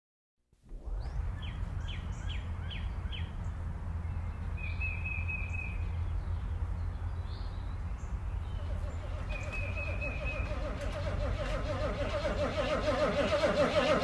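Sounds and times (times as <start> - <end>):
steady low rumble: 0.6 - 12.0
bird whistling and trilling: 8.5 - 11.0.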